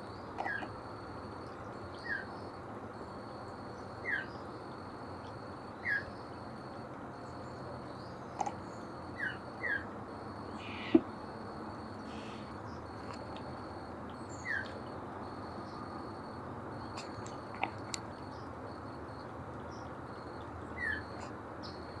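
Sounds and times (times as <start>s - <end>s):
insect trilling: 10.5s - 11.2s
bird downward-sliding call notes: 10.6s - 11.0s.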